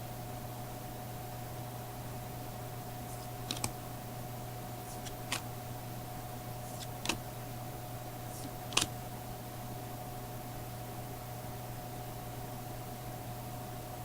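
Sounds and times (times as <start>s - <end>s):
low electrical hum: 0.0s - 14.0s
trading cards snapping: 3.1s - 3.8s, 4.9s - 5.5s, 6.7s - 7.3s, 8.3s - 9.0s.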